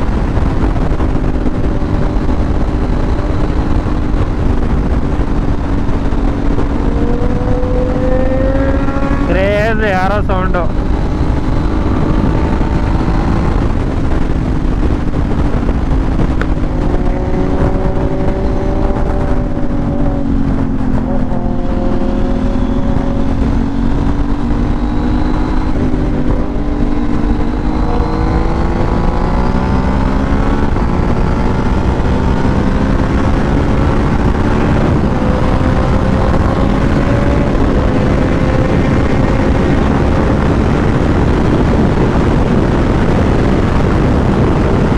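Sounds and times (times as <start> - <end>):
motorcycle engine cruising: 0.0 - 44.9
road noise: 0.0 - 44.9
wind noise: 0.0 - 44.9.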